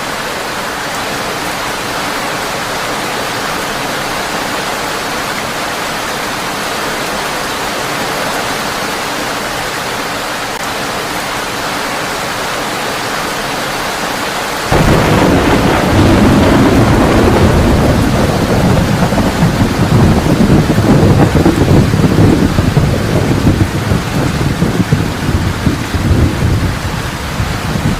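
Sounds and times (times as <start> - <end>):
heavy rain: 0.0 - 27.9
thunder rumbling: 14.7 - 27.9.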